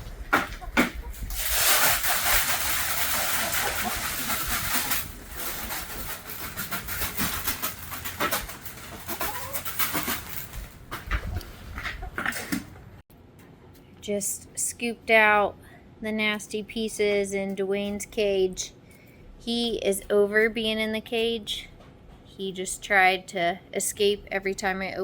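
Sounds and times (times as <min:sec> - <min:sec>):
chickens clucking: 0:00.0 - 0:01.3, 0:02.9 - 0:05.0, 0:07.2 - 0:10.5, 0:11.1 - 0:13.0
loud rustling and scraping: 0:00.0 - 0:12.6.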